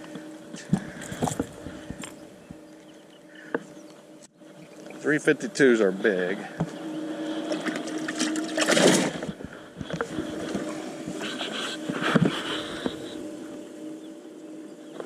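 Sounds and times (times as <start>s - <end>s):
small electric motor humming: 0.0s - 15.0s.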